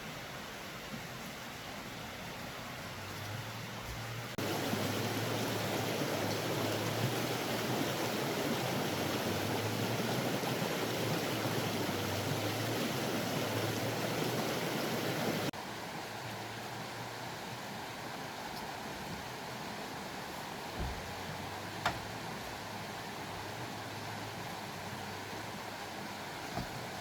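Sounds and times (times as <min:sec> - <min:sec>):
running water rushing: 0:00.0 - 0:27.0
steady hiss: 0:00.0 - 0:27.0.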